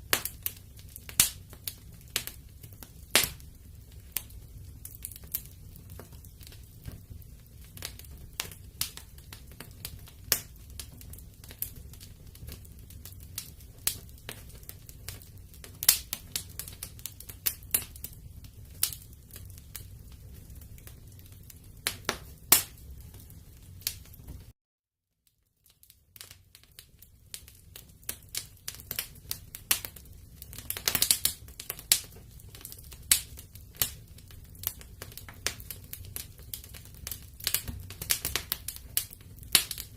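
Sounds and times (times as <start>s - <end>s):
low rumble of flames: 0.0s - 24.5s, 25.6s - 39.9s
wood fire crackling and popping: 0.0s - 24.6s, 25.2s - 39.9s.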